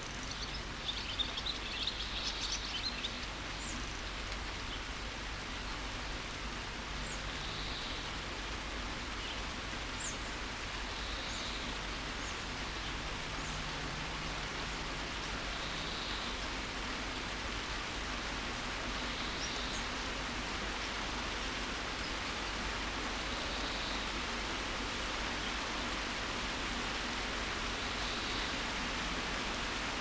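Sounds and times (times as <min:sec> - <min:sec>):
birds chirping: 0:00.0 - 0:05.0
steady rain falling: 0:00.0 - 0:30.0.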